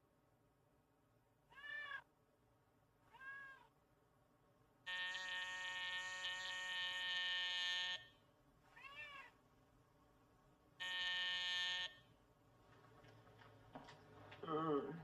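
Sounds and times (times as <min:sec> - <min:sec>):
cat meowing and yowling: 0:01.5 - 0:02.1, 0:03.1 - 0:03.7, 0:08.7 - 0:09.4.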